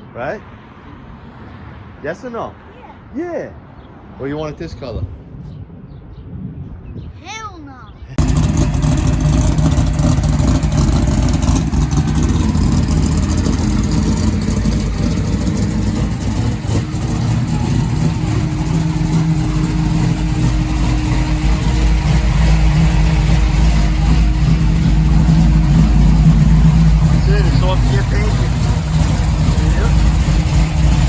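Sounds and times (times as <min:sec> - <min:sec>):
car engine running: 0:08.2 - 0:31.0.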